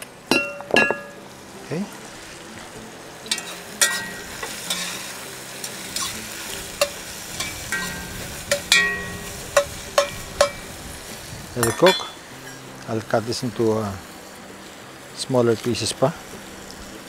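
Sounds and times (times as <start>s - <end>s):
onions sizzling in hot oil: 0.0s - 17.0s
metal utensil clinking on pot: 0.3s - 1.2s, 3.3s - 5.0s, 6.8s - 10.6s, 11.6s - 12.2s.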